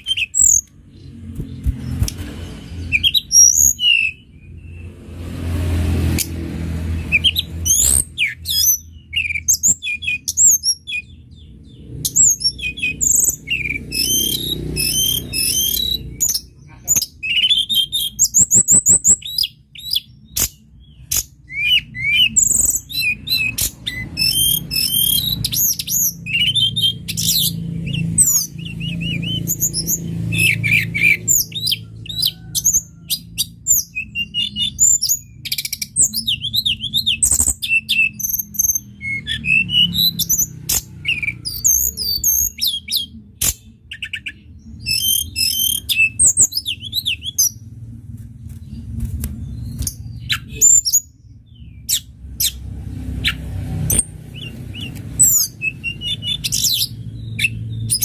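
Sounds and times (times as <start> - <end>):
songbird singing: 0.0 - 5.1, 6.0 - 47.7, 48.4 - 58.0
steady low hum: 46.1 - 53.7.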